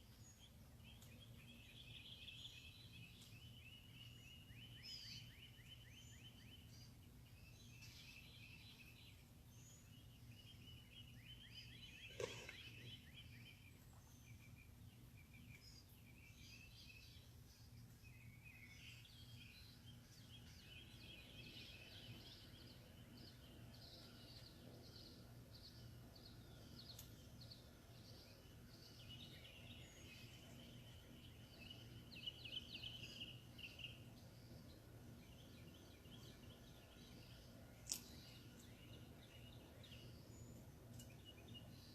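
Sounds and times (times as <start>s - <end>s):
birds chirping and trilling: 0.0s - 41.9s
low steady hum: 0.0s - 41.9s.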